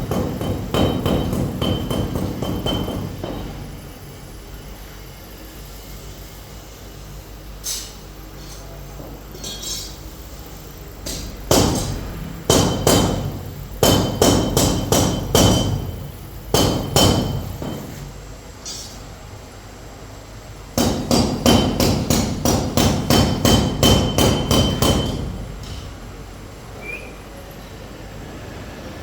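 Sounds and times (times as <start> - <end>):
hammer striking metal: 0.0 - 3.8, 11.0 - 18.1, 20.8 - 26.0.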